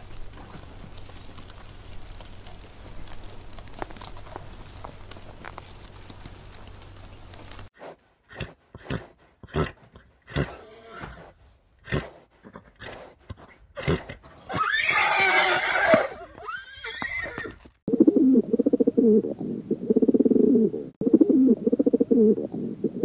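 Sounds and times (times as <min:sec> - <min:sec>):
horse whinnying: 0:09.5 - 0:11.3, 0:13.8 - 0:17.6
pigeon cooing: 0:17.9 - 0:23.0.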